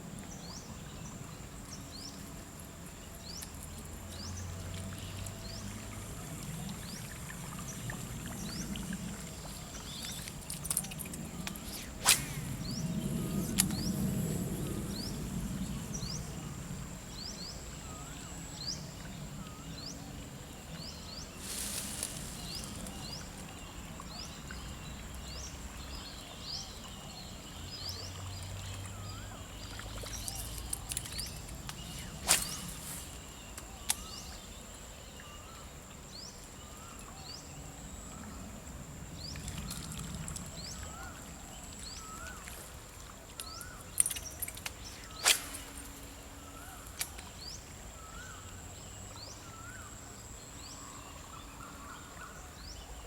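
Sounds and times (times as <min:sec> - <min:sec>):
high insect drone: 0:05.4 - 0:24.0.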